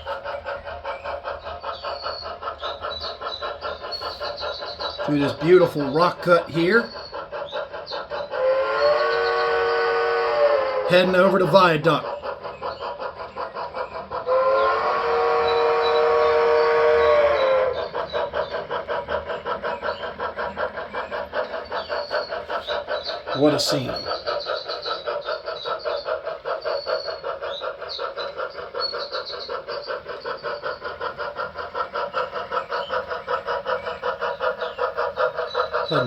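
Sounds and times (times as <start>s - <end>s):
model steam locomotive chuffing: 0.0s - 36.0s
model train steam whistle chime: 8.4s - 12.0s, 14.3s - 17.9s.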